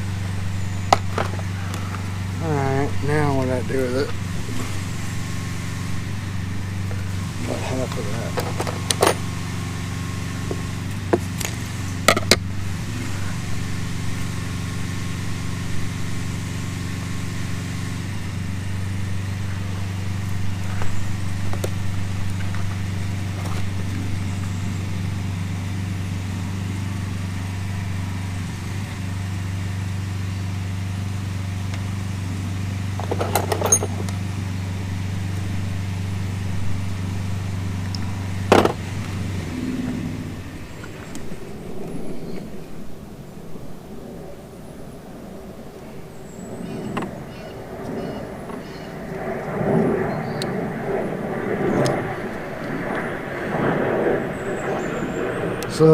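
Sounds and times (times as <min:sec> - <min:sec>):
low machine hum: 0:00.0 - 0:55.9
tools and wire clicking: 0:33.0 - 0:34.2.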